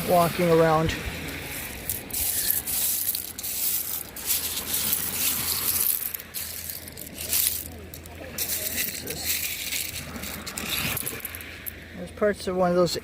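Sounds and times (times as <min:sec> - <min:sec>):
footsteps crunching on seashells: 0:01.5 - 0:11.8.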